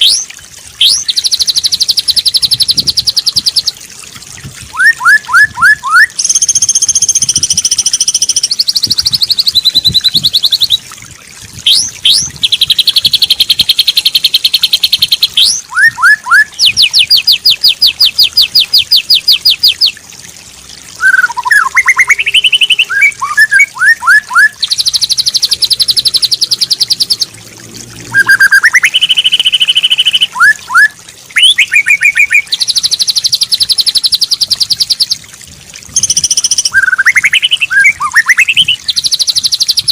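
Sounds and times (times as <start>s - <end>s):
songbird singing trills and whistles: 0.0s - 3.8s, 4.7s - 10.9s, 11.6s - 20.0s, 21.0s - 27.3s, 28.1s - 35.2s, 36.0s - 39.9s.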